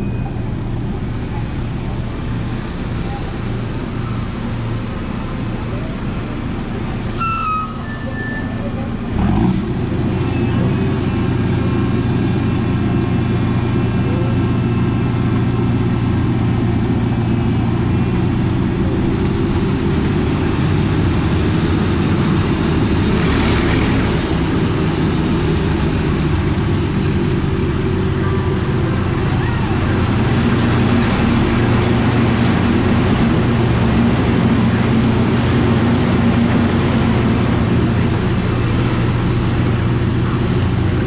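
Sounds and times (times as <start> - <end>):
ride train rumbling on track: 0.0 - 41.0
rush of higher noise: 7.0 - 9.7.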